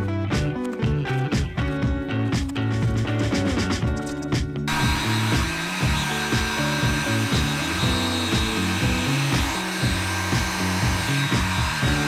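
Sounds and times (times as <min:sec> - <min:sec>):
background music: 0:00.0 - 0:12.0
hot air gun blowing: 0:04.7 - 0:12.0.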